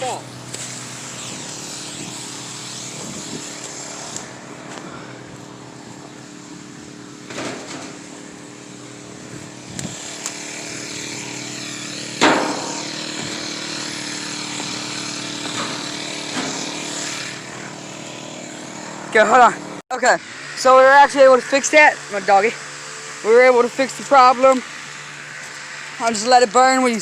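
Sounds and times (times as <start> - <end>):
small engine running: 0.0 - 27.0
sharp knock: 12.2 - 12.7.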